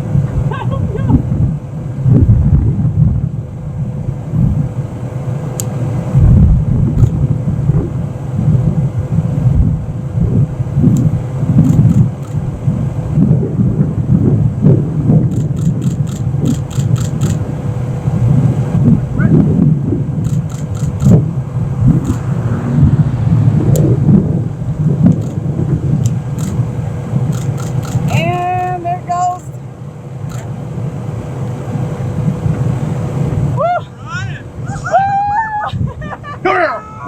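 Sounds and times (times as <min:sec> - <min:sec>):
steady hum: 0:00.0 - 0:37.0
wind gusting over microphone: 0:00.0 - 0:37.0.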